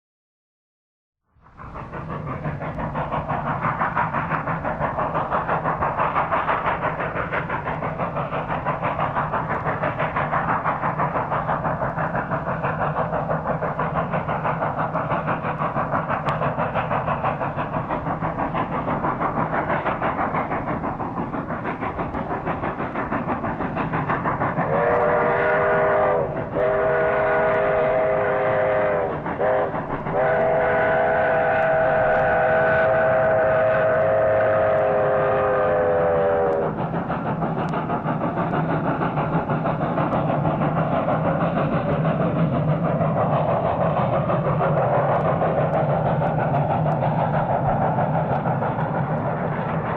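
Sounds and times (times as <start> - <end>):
train chugging: 1.3 - 49.9
train whistle blasts: 24.7 - 36.7.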